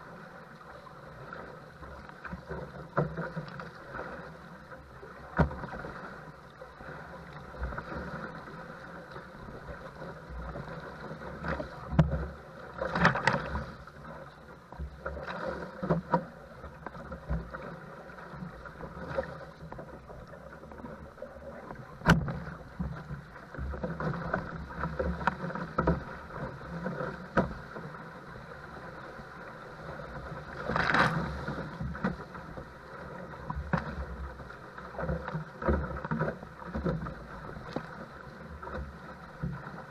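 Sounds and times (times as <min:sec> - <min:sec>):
paddle strokes: 0:00.0 - 0:39.9
water slapping against boat: 0:00.0 - 0:39.9.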